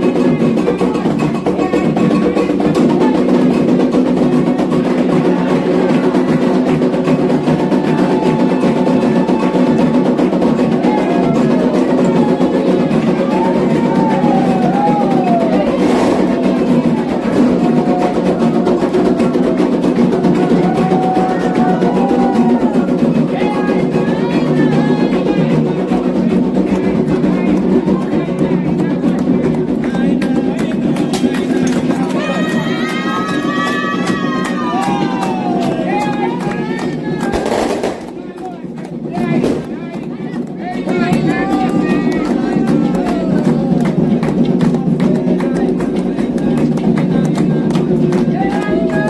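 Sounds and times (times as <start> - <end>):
group of voices chanting: 0.0 - 49.0
hand drums playing: 0.0 - 49.0.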